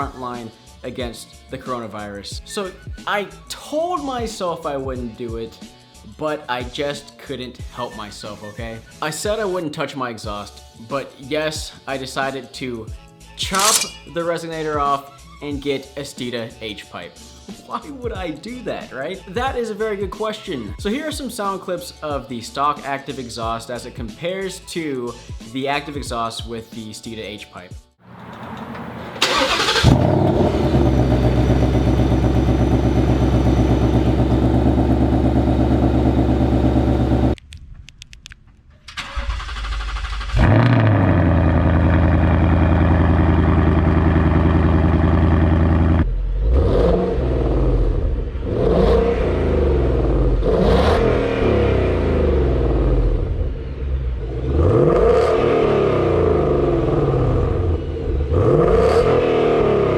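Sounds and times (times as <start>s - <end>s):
car engine idling and revving: 28.1s - 37.4s, 40.2s - 59.9s.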